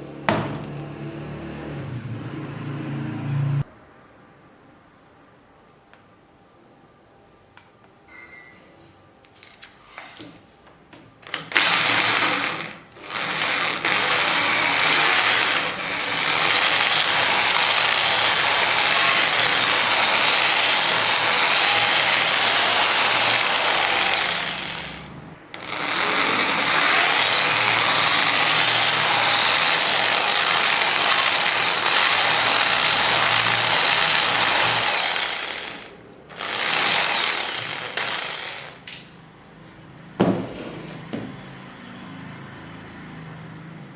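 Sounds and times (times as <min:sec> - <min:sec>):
power drill running: 0:11.2 - 0:39.0.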